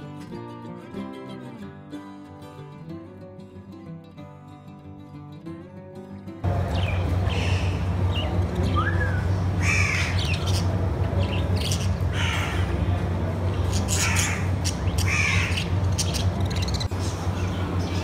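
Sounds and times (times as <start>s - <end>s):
steady low hum: 6.4s - 18.0s
birds squawking: 6.5s - 18.0s.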